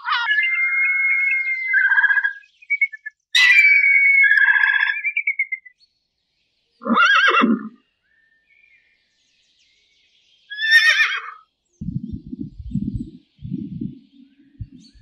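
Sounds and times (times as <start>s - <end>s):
horse whinnying: 6.8s - 7.8s, 10.5s - 11.4s.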